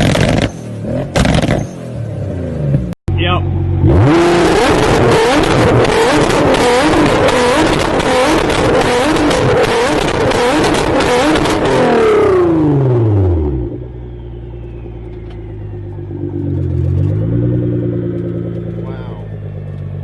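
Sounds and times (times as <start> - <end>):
exhaust popping and crackling: 0.0 - 1.8, 3.8 - 12.6, 13.6 - 20.0
car engine revving: 0.0 - 20.0.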